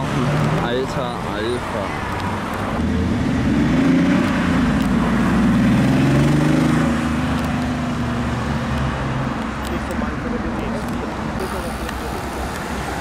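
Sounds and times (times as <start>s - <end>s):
passing traffic: 0.0s - 13.0s
car engine accelerating: 2.6s - 10.6s.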